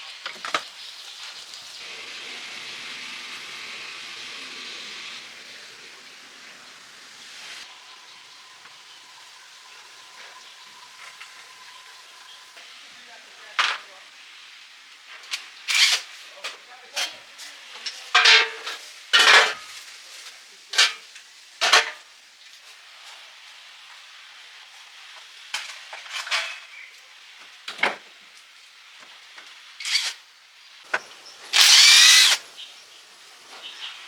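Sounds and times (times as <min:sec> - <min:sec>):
power drill running: 0:31.5 - 0:32.4.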